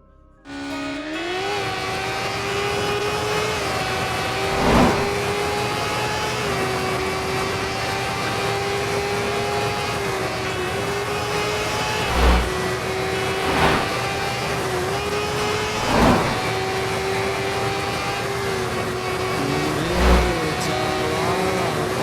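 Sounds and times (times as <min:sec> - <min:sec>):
motorcycle engine running: 0:00.5 - 0:22.0
rushing noise: 0:04.4 - 0:05.3, 0:11.8 - 0:14.2, 0:15.6 - 0:16.6, 0:19.9 - 0:20.5.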